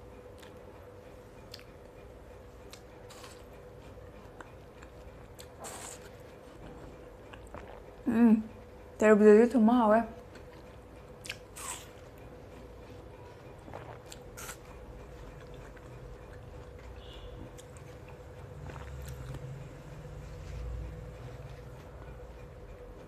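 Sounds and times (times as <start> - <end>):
faint steady hum: 0.0 - 23.0
crunching and chewing watermelon: 2.6 - 8.0, 10.2 - 20.9.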